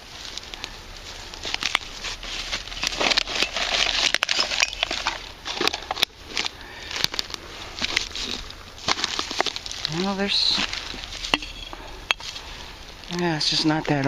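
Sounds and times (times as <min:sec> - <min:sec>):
rustle of leaves and debris: 0:00.0 - 0:14.0
glass bottles and cans clinking: 0:02.8 - 0:06.1, 0:11.2 - 0:12.4.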